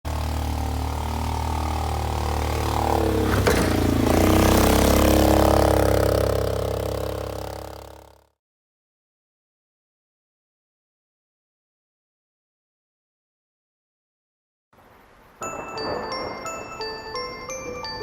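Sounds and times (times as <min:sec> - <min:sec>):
engine clatter: 0:00.0 - 0:08.3
atv engine running: 0:00.0 - 0:08.4.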